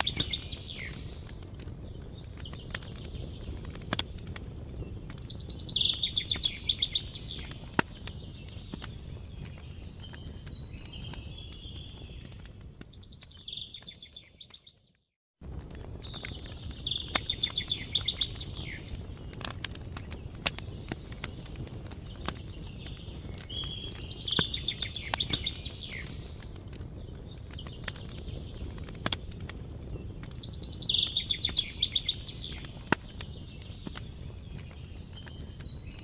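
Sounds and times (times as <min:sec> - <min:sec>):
campfire crackling and popping: 0:00.0 - 0:36.0
songbird trilling: 0:05.3 - 0:07.5, 0:16.5 - 0:18.8, 0:30.5 - 0:32.7.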